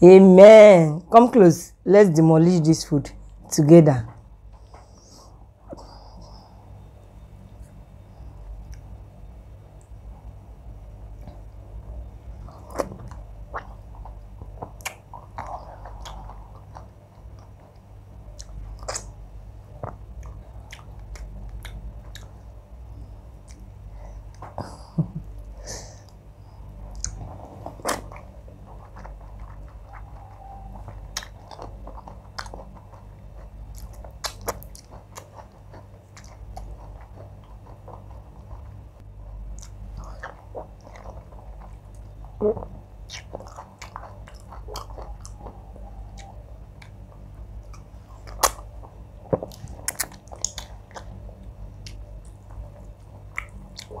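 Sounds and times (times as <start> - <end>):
wet chewing and mouth smacks: 8.6 - 8.9, 12.4 - 22.5, 26.9 - 54.0.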